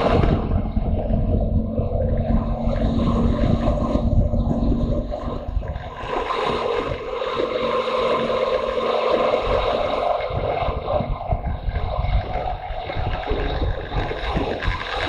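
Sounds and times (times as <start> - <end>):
motorcycle engine running: 0.0 - 7.1
wind buffeting microphone: 0.0 - 15.0.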